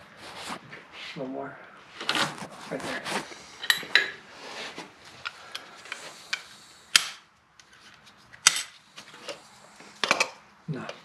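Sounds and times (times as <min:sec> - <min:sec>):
hand tools clinking on metal: 0:08.4 - 0:08.8.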